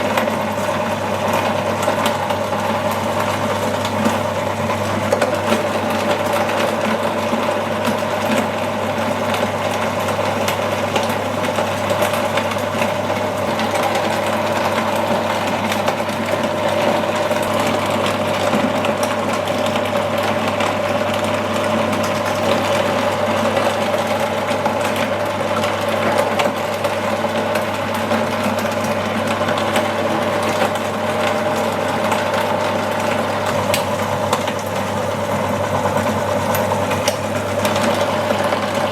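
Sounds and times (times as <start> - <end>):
meat grinder motor humming: 0.0 - 38.9.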